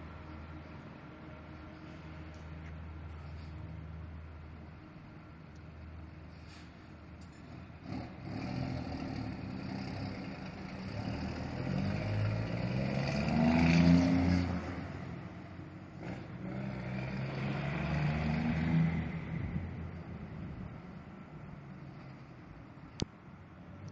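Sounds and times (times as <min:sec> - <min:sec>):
truck diesel engine accelerating: 0:06.0 - 0:22.4.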